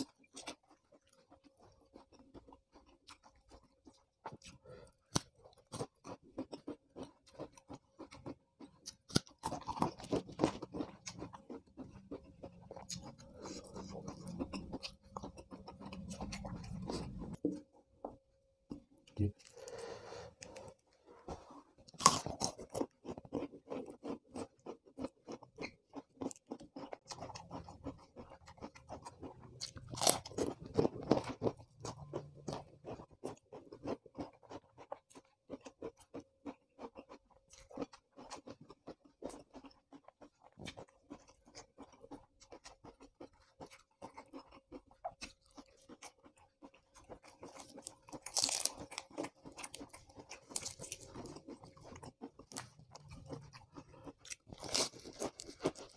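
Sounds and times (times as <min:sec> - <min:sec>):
crunching raw vegetables: 0:18.7 - 0:55.9.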